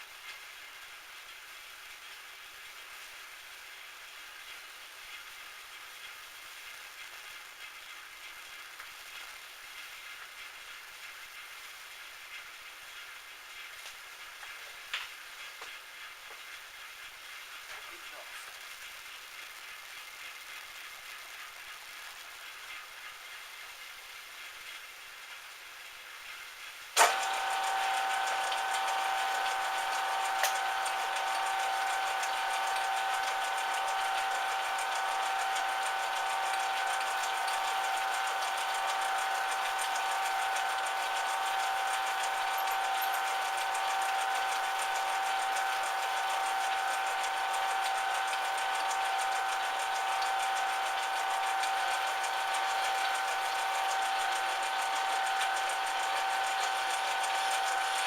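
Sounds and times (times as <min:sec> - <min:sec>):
metal lathe running: 0:27.0 - 0:58.0.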